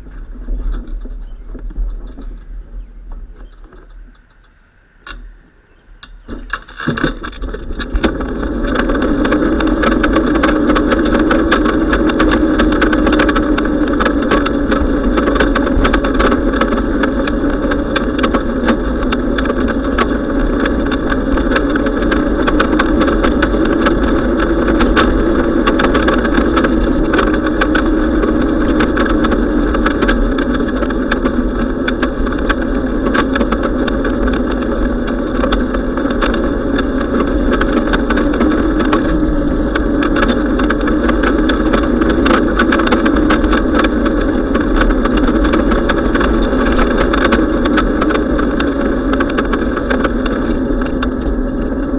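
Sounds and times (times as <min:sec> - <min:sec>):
sharp clicks and rattles: 0:00.0 - 0:05.4, 0:06.0 - 0:51.9
bicycle ride noise: 0:00.0 - 0:51.9.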